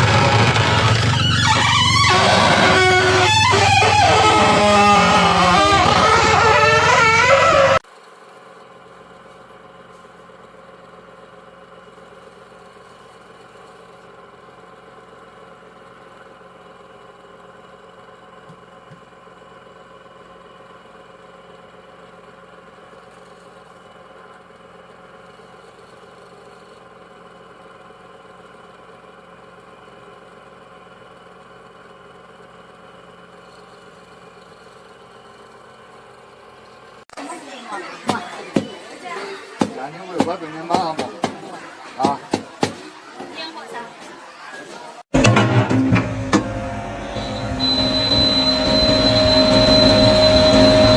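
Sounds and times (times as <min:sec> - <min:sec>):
machine humming steadily: 0:45.2 - 0:50.9.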